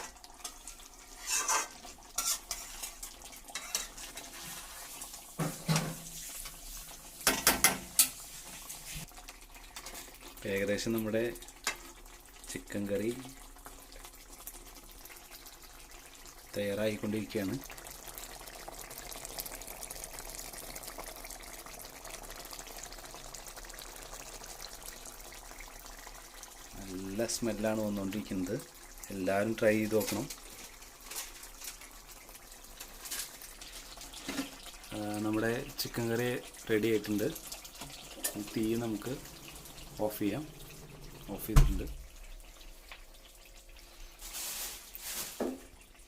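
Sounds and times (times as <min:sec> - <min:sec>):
utensil scraping a pot: 0:00.0 - 0:05.2
curry bubbling in a pot: 0:00.0 - 0:46.0
soft sizzle: 0:00.0 - 0:46.0.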